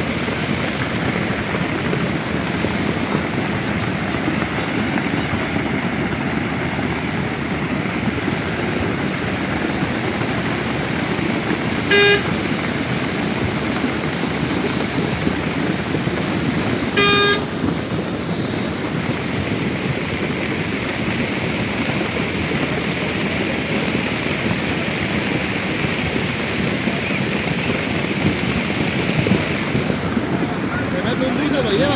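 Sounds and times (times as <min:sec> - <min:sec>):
steady rushing noise: 0:00.0 - 0:31.9
short horn beep: 0:11.9 - 0:12.4, 0:17.0 - 0:17.6.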